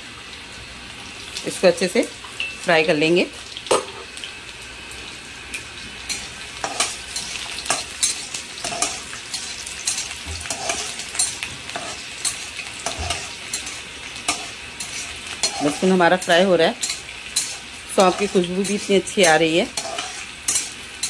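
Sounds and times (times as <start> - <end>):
garlic sizzling in hot oil: 0.0 - 21.0
utensil scraping and tapping pan: 6.6 - 15.8, 16.8 - 20.7.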